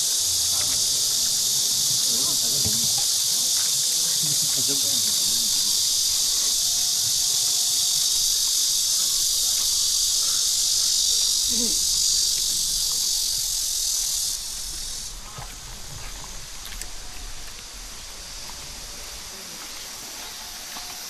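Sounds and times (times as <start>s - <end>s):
cicadas buzzing: 0.0s - 21.0s.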